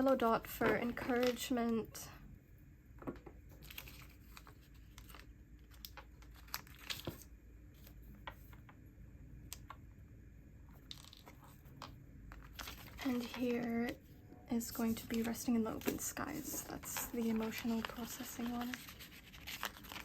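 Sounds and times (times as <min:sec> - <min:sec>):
sticker peeling and paper rustling: 0:12.3 - 0:14.0, 0:14.7 - 0:20.0.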